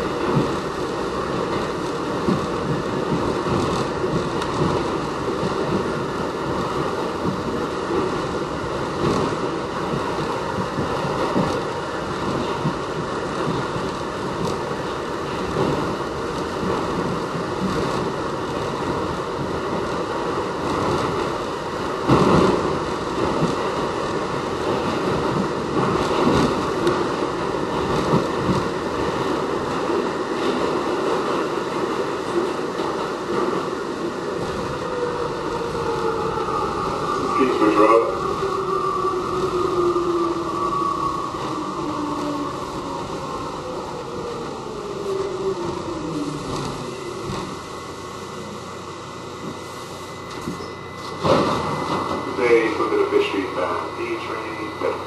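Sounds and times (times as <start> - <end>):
steel wheels roaring on rail: 0.0 - 55.0.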